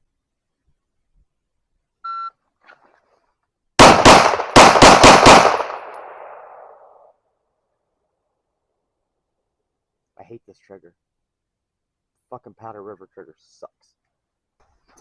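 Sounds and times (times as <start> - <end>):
electronic timer beep: 2.0 - 2.3
rapid pistol shots: 3.8 - 6.9.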